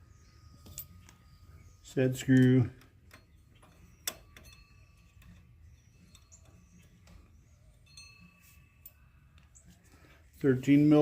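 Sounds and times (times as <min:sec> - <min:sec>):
metallic clinks of hand tools: 0:00.6 - 0:01.2, 0:02.3 - 0:07.2.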